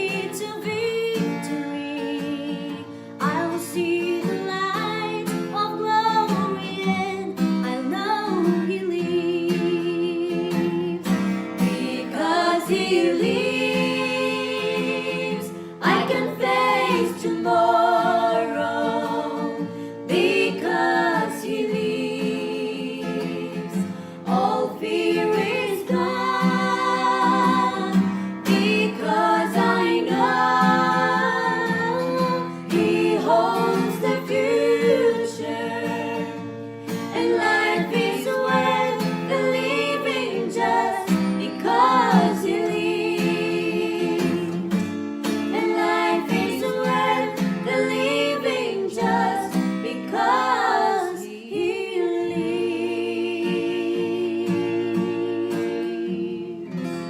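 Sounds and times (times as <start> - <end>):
guitar accompaniment: 0.0 - 57.0
vocal trio singing in harmony: 0.0 - 57.0.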